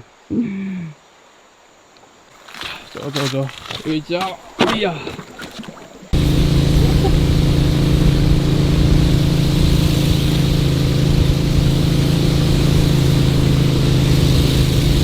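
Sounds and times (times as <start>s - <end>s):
boat engine running: 5.2s - 15.0s.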